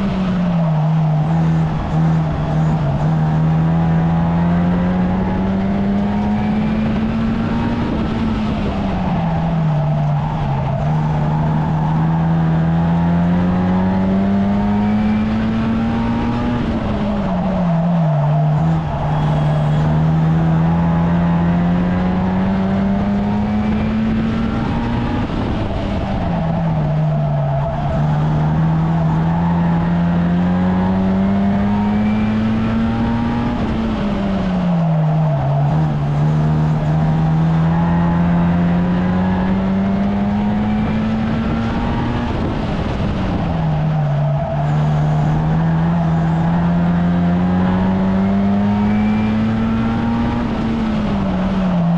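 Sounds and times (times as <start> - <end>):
race car engine running hard: 0.0 - 51.9.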